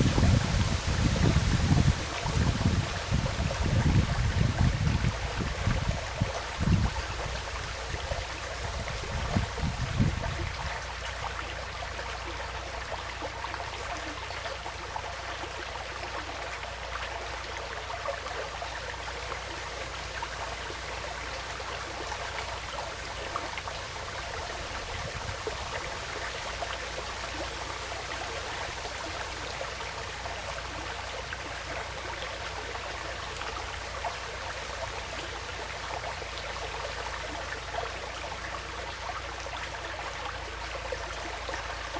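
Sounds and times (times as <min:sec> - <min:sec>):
wind buffeting microphone: 0:00.0 - 0:10.9, 0:24.2 - 0:25.9
stream flowing: 0:00.0 - 0:41.9.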